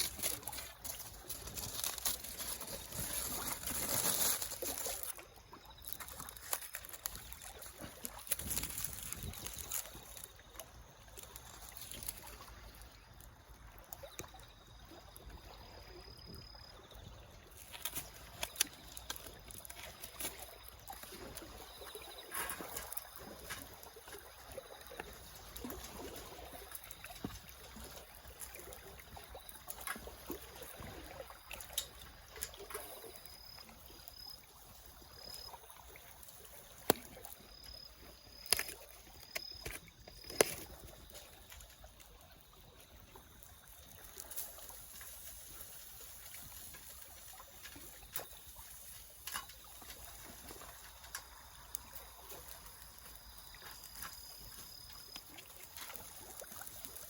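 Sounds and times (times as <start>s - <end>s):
wood fire crackling and popping: 38.4s - 40.7s.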